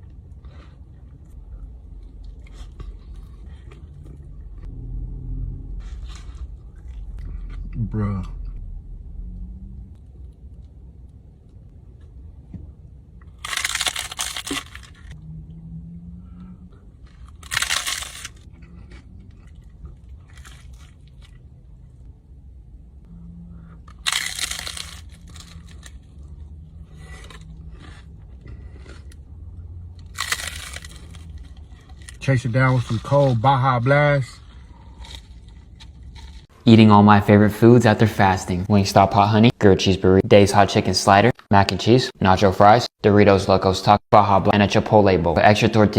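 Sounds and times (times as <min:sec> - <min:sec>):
steady low hum: 0:00.0 - 0:43.0
crunching crispy food: 0:13.2 - 0:15.2, 0:17.0 - 0:21.5, 0:23.8 - 0:29.3, 0:29.9 - 0:33.4, 0:34.3 - 0:36.5.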